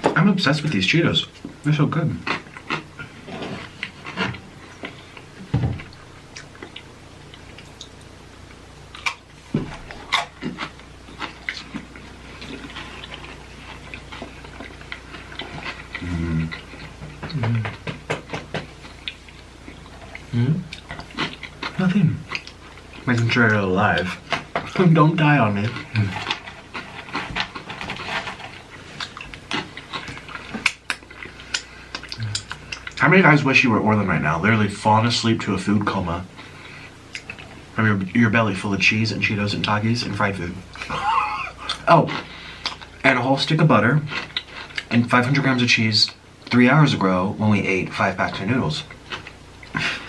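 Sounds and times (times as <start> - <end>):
crunchy snacks being chewed: 1.4 - 8.1, 8.9 - 23.4, 25.2 - 33.0, 40.7 - 44.9, 48.8 - 50.0
wet mouth clicks: 30.0 - 32.9.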